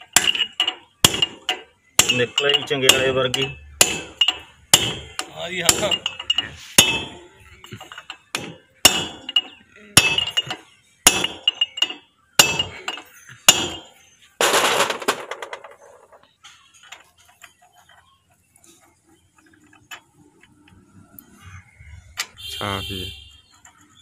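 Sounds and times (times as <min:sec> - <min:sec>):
small metal clinks: 0:00.0 - 0:08.4, 0:09.2 - 0:14.0
metal clatter: 0:00.0 - 0:20.9
hammer ringing on steel: 0:00.2 - 0:07.3, 0:08.4 - 0:13.9.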